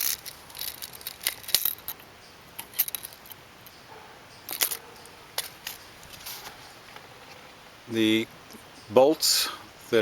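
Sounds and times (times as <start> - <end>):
metal and wood clicks and clinks: 0.0 - 3.8, 4.5 - 6.5.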